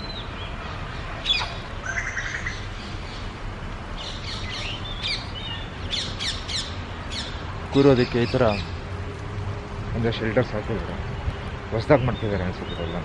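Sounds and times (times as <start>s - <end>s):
wild birds calling: 0.0s - 9.0s, 9.9s - 13.0s
bird rapid trill: 1.2s - 3.3s.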